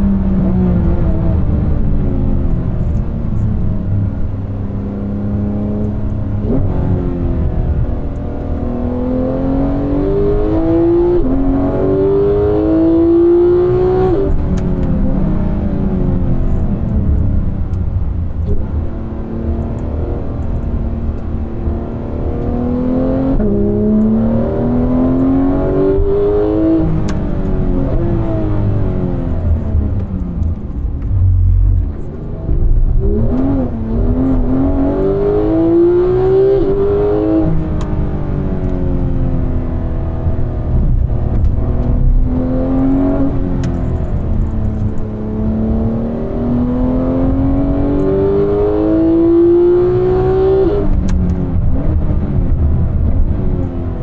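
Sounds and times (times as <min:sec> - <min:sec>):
sports car engine accelerating: 0:00.0 - 0:54.0.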